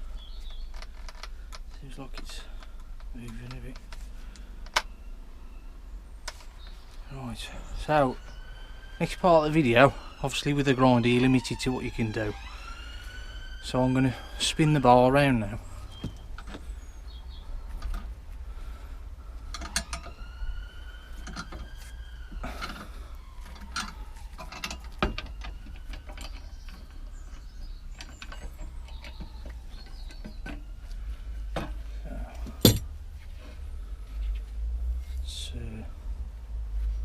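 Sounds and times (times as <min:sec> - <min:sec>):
metal parts clicking and clanking: 0:19.5 - 0:20.2, 0:23.5 - 0:30.6, 0:32.4 - 0:32.9
sharp metallic knock: 0:32.6 - 0:32.8.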